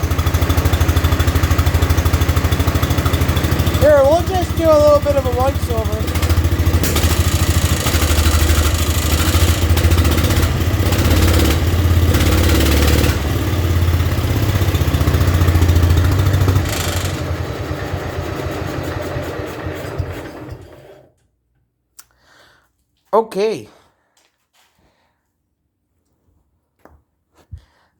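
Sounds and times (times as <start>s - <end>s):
lawn tractor engine running: 0.0s - 21.1s.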